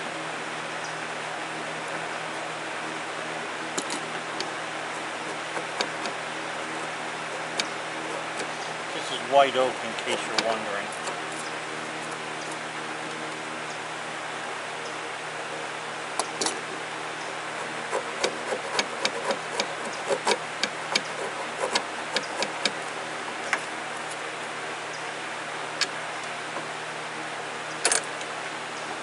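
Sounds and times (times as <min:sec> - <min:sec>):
steady hiss and hum: 0:00.0 - 0:29.0
chisel ticking on wood: 0:17.9 - 0:22.8.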